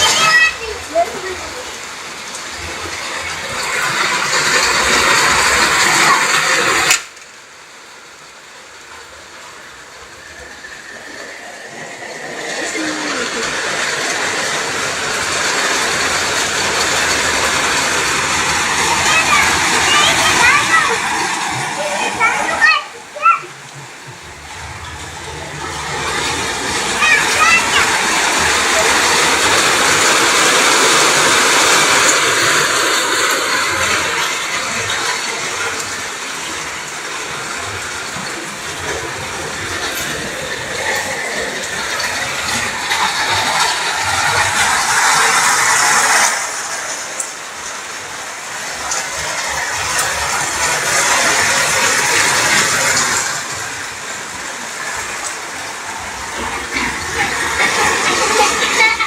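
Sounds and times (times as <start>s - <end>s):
heavy rain pouring: 0.0s - 59.0s
running water: 0.0s - 59.0s.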